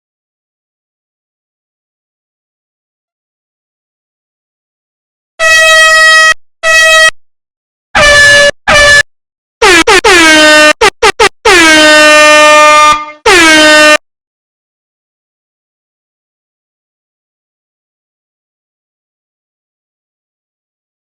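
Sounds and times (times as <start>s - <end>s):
air horn blasts: 5.4s - 7.2s, 8.0s - 9.0s, 9.6s - 14.0s.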